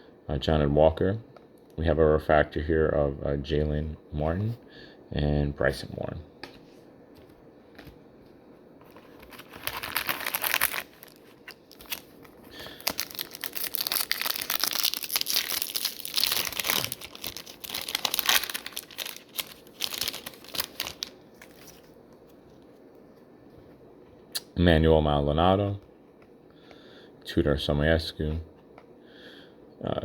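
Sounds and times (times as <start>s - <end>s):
foil wrapper tearing and crinkling: 8.9s - 21.9s.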